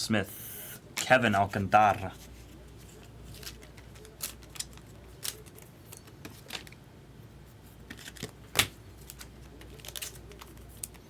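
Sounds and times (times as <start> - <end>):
trading cards clicking and snapping: 3.4 - 6.7.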